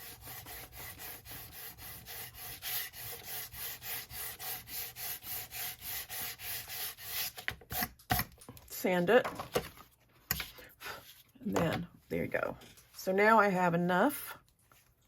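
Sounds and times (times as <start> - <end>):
hand sanding scratchy strokes: 0.0 - 7.4.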